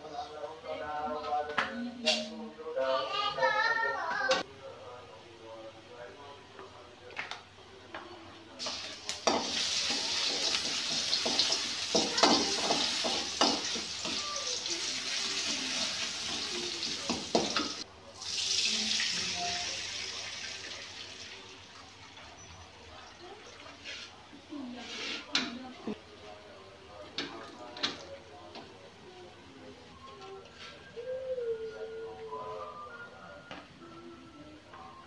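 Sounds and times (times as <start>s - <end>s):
food sizzling in hot oil: 8.6s - 21.4s
water poured into wok: 13.8s - 22.0s.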